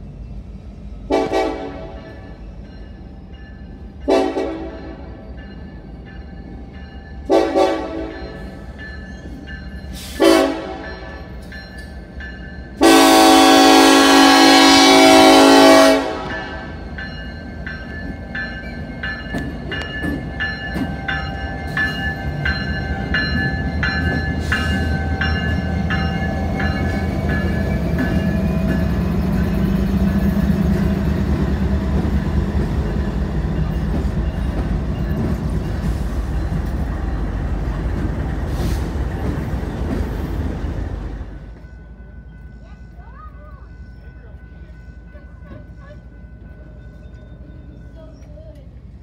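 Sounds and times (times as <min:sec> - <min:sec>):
locomotive engines rumbling: 0:00.0 - 0:49.0
train horn blast: 0:01.1 - 0:02.2, 0:04.0 - 0:05.2, 0:07.3 - 0:08.3, 0:10.1 - 0:11.2, 0:12.8 - 0:16.8
crossing bell dinging: 0:01.1 - 0:49.0.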